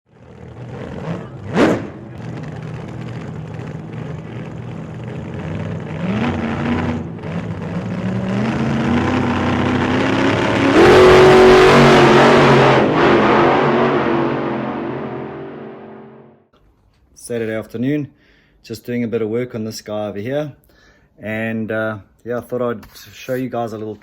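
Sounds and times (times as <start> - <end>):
motorbike engine revving: 0.3 - 16.2.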